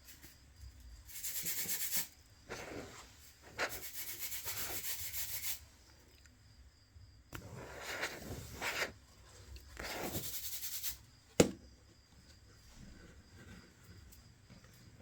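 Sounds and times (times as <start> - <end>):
hand rubbing a smartphone: 7.4 - 9.0.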